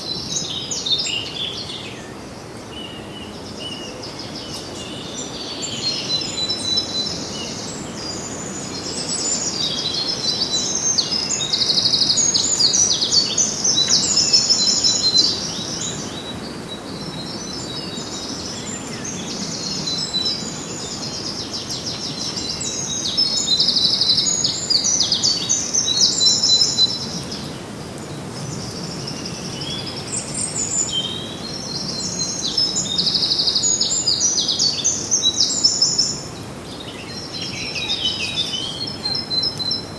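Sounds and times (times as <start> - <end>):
small songbirds chirping and trilling: 0.0 - 39.9.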